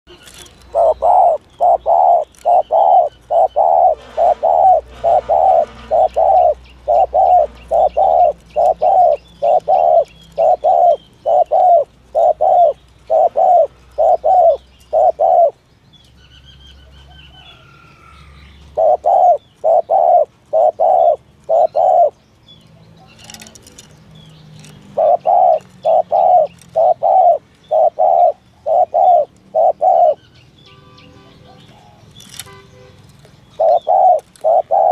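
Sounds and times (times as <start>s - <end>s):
dove cooing: 0.2s - 15.6s, 17.1s - 22.2s, 23.0s - 23.9s, 24.6s - 30.3s, 33.5s - 34.9s.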